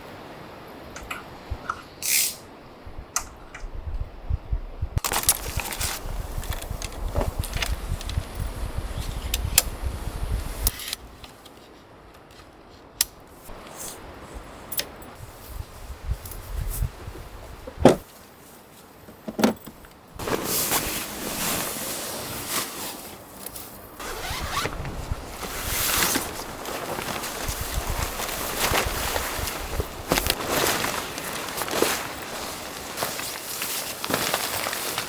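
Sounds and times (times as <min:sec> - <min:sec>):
gear handling knocks: 0:19.1 - 0:19.9
zipper being pulled: 0:24.0 - 0:26.4.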